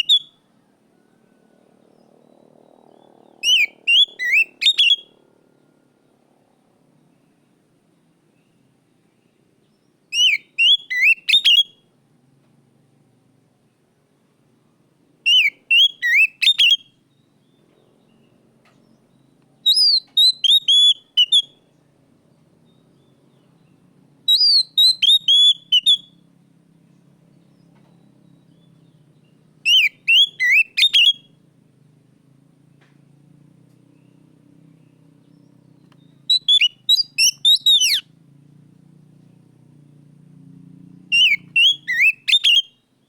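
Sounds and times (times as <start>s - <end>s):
bird singing whistled phrases: 0.0s - 0.4s, 3.4s - 5.2s, 10.1s - 11.8s, 15.3s - 17.6s, 19.2s - 21.7s, 24.3s - 26.2s, 28.0s - 31.4s, 35.8s - 38.0s, 41.1s - 42.9s.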